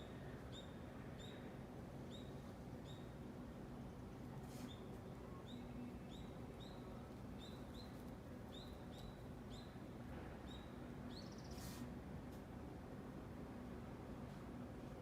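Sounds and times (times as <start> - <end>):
bird chirping: 5.4 - 9.8.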